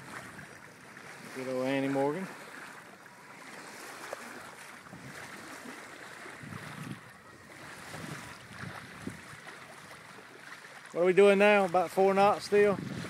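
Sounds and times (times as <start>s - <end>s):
water splashing along boat hull: 0.0s - 13.0s
wind on microphone: 4.8s - 10.3s, 12.2s - 13.0s.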